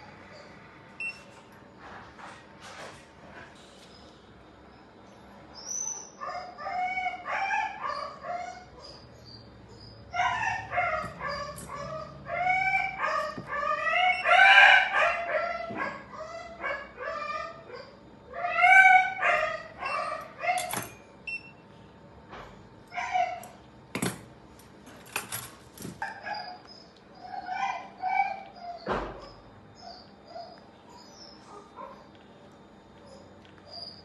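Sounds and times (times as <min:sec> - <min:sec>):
small animal crying: 0:10.1 - 0:20.7.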